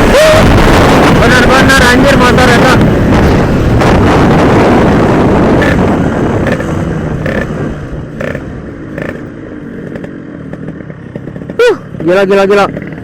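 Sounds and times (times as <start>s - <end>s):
wind rush: 0.0s - 9.1s
two-stroke motorcycle engine: 0.0s - 13.0s.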